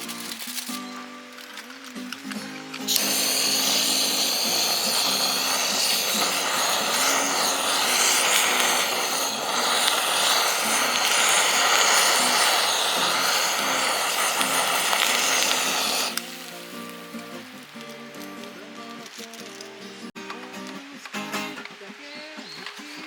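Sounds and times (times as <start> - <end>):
food sizzling in hot oil: 2.9 - 17.9.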